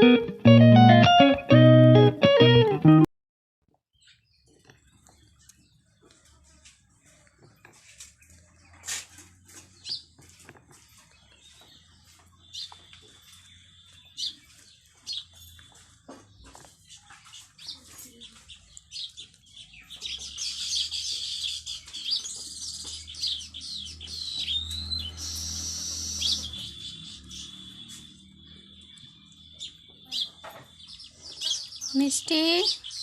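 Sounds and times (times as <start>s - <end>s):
parakeet chirping and chattering: 16.8s - 33.0s.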